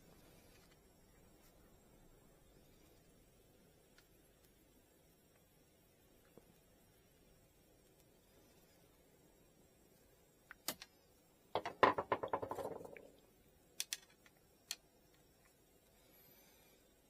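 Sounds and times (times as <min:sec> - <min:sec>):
small hard objects clicking: 0:13.8 - 0:15.2.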